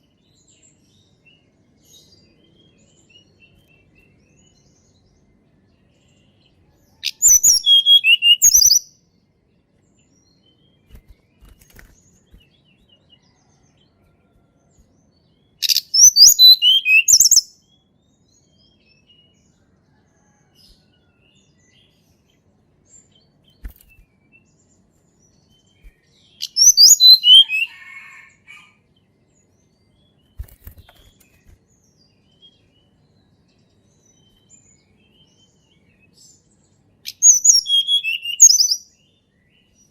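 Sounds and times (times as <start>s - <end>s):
bird singing high whistled notes: 7.0s - 8.9s, 15.6s - 17.6s, 25.5s - 28.2s, 37.1s - 39.0s.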